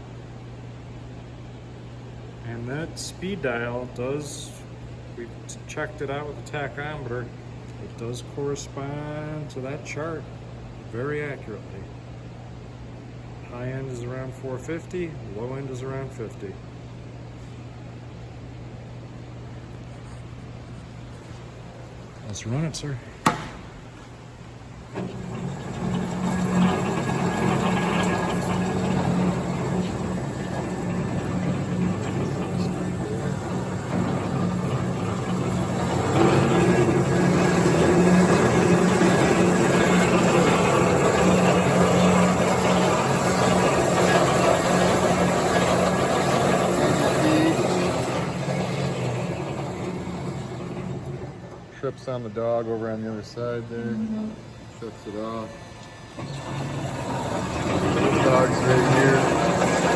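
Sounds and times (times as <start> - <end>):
band saw running: 24.9 - 51.7, 56.1 - 59.9.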